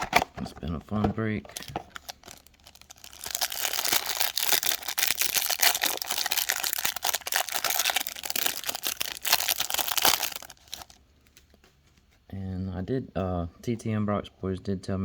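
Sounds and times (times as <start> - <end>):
plastic packaging crinkling: 1.0 - 11.6.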